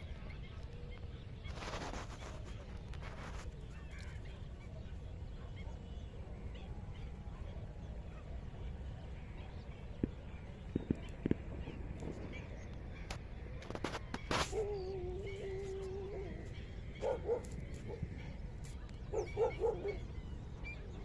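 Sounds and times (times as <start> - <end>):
waterfowl calling: 9.5 - 21.0.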